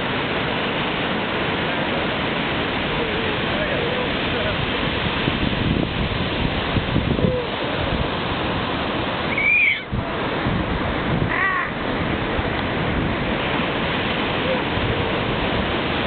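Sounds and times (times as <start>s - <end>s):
ocean surf breaking: 0.0s - 16.0s
short high calls: 9.3s - 9.9s.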